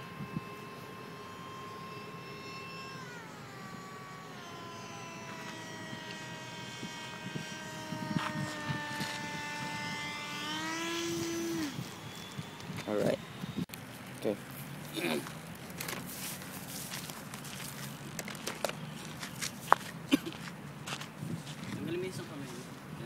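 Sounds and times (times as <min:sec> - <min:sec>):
electric ducted fan whining: 0:00.0 - 0:23.0.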